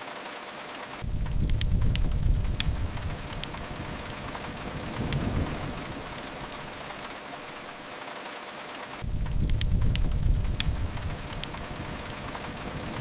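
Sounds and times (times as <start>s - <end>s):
rain hiss: 0.0s - 13.0s
wood fire crackles: 0.0s - 13.0s
low rumble: 1.0s - 7.3s, 9.0s - 13.0s.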